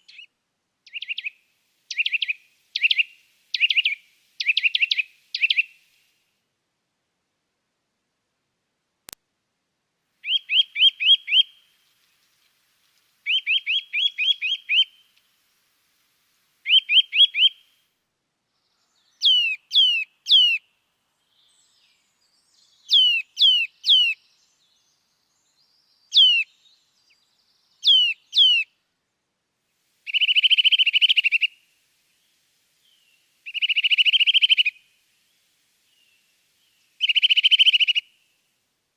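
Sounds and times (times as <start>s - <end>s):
songbird chirping and trilling: 0.0s - 5.9s, 10.2s - 12.5s, 13.2s - 15.2s, 16.6s - 17.7s, 18.5s - 28.8s, 30.1s - 31.6s, 32.2s - 38.3s.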